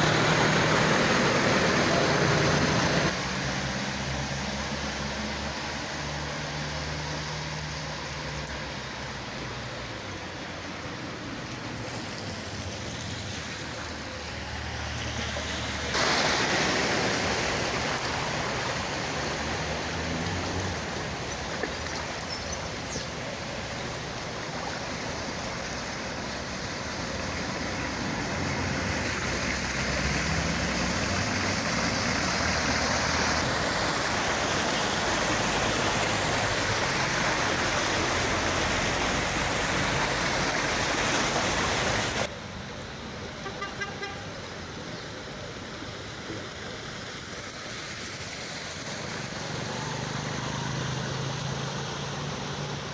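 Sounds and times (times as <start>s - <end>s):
rushing floodwater: 0.0s - 52.9s.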